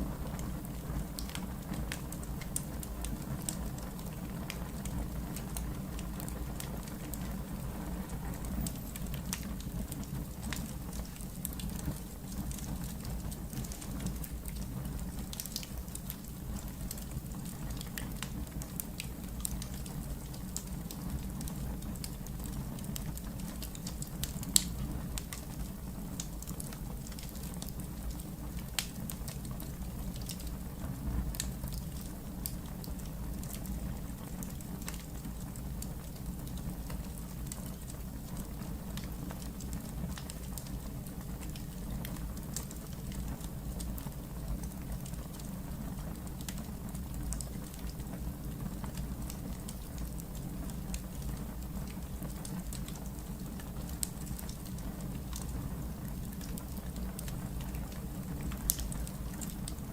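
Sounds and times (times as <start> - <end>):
wood fire burning: 0.0 - 59.9.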